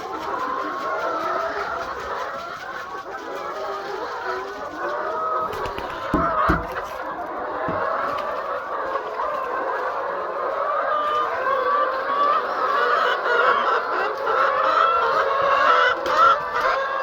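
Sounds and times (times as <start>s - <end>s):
hens clucking: 0.0s - 17.0s
dull thumps: 5.4s - 8.2s.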